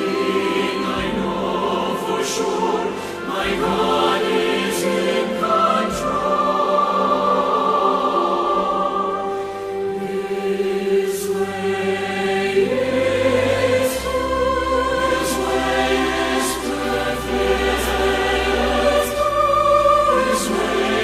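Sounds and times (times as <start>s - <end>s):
choir singing slow song: 0.0s - 21.0s.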